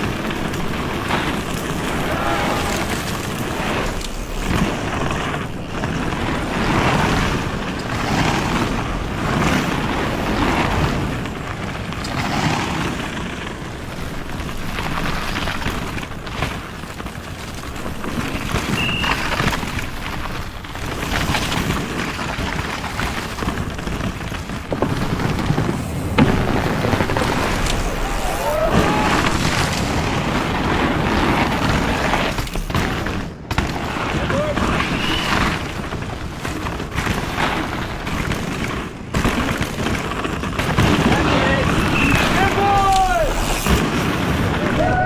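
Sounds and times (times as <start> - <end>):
wind buffeting microphone: 0.0 - 38.1
high beep: 18.8 - 19.2.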